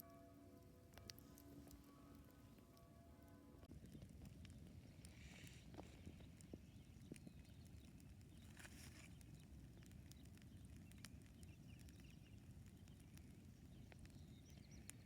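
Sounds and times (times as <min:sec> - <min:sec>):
campfire crackling: 0:00.0 - 0:15.0
fire pops and snaps: 0:03.6 - 0:15.0.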